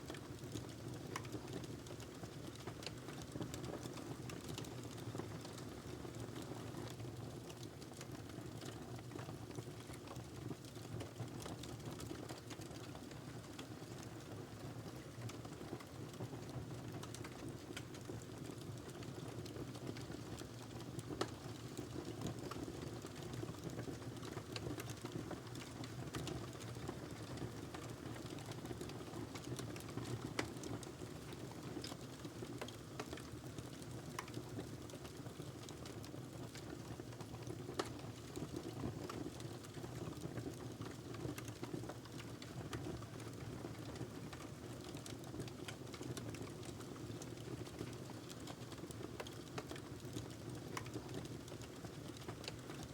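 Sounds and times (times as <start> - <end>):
log fire crackling: 16.8 - 38.4, 39.0 - 52.8.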